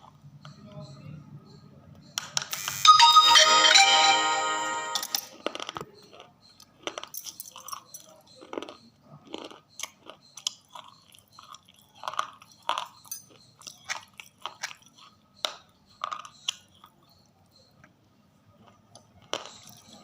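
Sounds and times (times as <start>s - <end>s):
crunchy food chewing: 5.4s - 20.0s.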